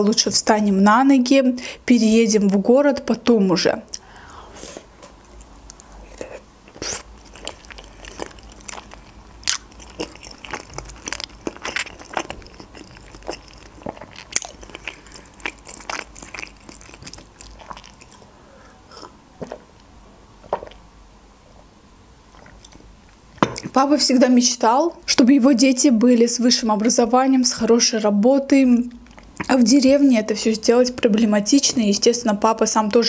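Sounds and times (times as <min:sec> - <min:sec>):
person chewing with mouth smacks: 0:05.0 - 0:18.3, 0:18.9 - 0:20.8, 0:22.3 - 0:23.8.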